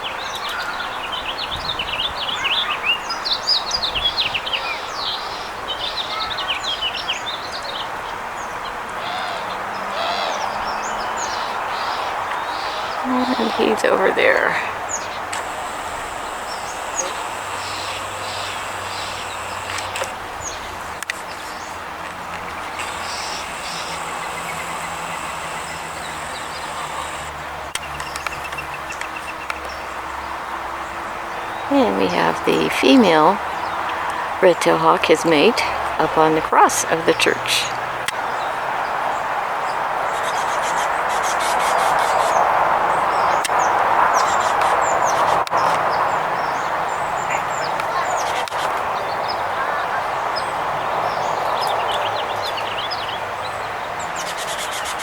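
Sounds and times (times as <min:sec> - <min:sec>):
songbirds chirping: 0:00.0 - 0:55.0
bird rattling call: 0:11.2 - 0:29.4, 0:40.1 - 0:42.5, 0:43.1 - 0:46.6, 0:54.2 - 0:55.0
even hiss: 0:11.6 - 0:29.2.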